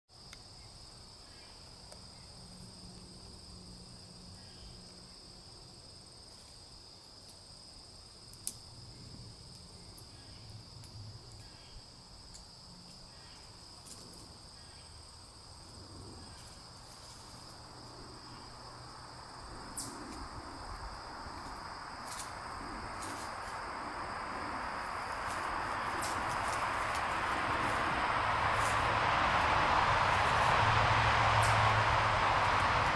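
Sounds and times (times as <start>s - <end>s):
insects trilling: 0.2s - 32.9s
distant highway traffic hum: 8.6s - 32.9s
approaching vehicle: 15.7s - 32.9s.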